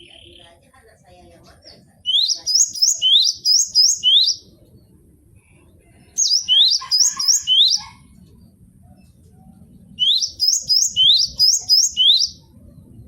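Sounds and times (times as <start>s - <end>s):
bird singing rising whistled notes: 2.1s - 4.6s, 6.2s - 8.0s, 9.9s - 12.6s.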